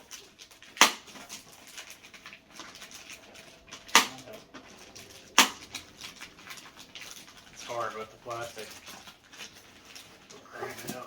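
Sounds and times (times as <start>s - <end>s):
plastic packaging crinkling: 0.0s - 11.0s
sharp clicks: 0.8s - 1.2s, 3.9s - 4.3s, 5.3s - 5.9s.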